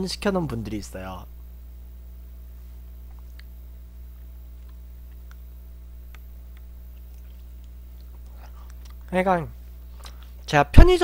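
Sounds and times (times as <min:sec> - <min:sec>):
low electrical hum: 0:00.0 - 0:11.0
soft chewing clicks: 0:03.0 - 0:09.1.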